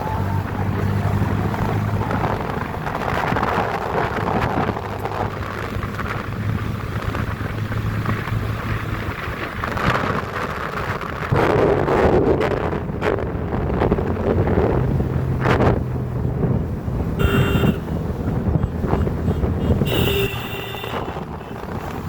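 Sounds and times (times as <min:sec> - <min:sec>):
wind buffeting microphone: 0:00.0 - 0:22.0
motorcycle engine running: 0:16.2 - 0:22.0.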